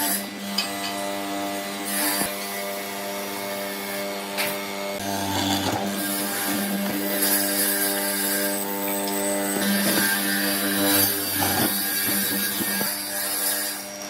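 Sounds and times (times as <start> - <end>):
power tool motor whining: 0.0 - 14.0
tool cutting wood: 0.0 - 14.0.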